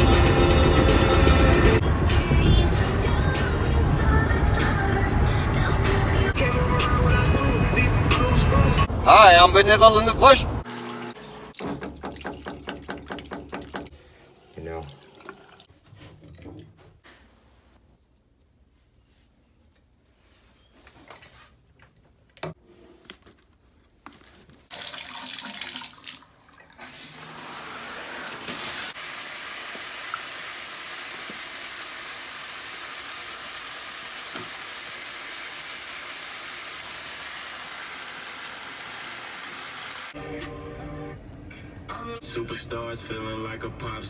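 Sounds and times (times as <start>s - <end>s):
running water: 11.6s - 15.7s, 24.7s - 40.2s.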